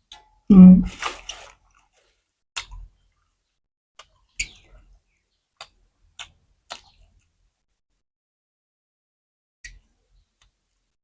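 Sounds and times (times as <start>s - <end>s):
crunching crisp food: 0.9s - 2.2s.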